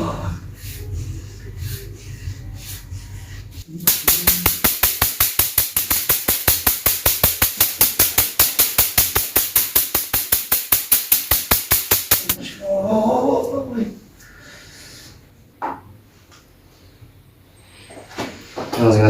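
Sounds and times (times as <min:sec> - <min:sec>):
rapid knocking on person's back: 0:03.8 - 0:12.4.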